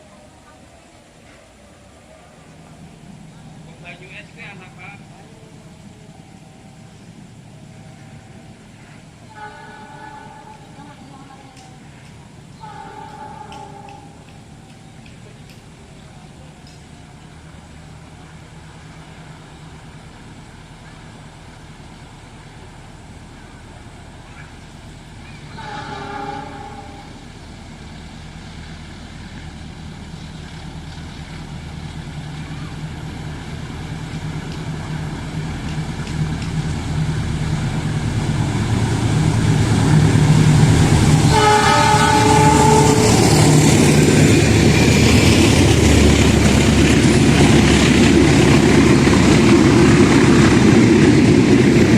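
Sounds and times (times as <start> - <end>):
locomotive engine hum: 0.0 - 51.9
locomotive horn blast: 9.3 - 11.2, 12.6 - 14.2, 25.5 - 27.2, 41.0 - 43.8.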